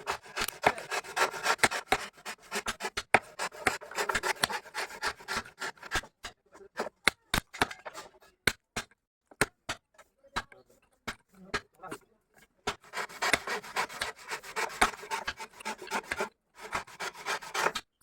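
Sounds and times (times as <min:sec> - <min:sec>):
hand tool rasping wood: 0:00.0 - 0:07.0, 0:12.7 - 0:18.0.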